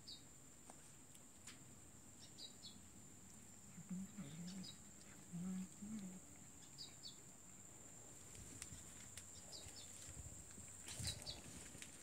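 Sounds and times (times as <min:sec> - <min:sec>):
faint high bird chirps: 0:00.0 - 0:00.3, 0:02.2 - 0:02.8.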